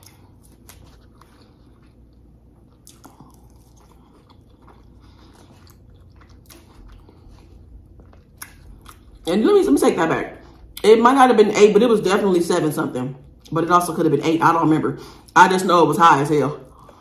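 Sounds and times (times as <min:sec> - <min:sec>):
person chewing food: 0:00.0 - 0:09.3.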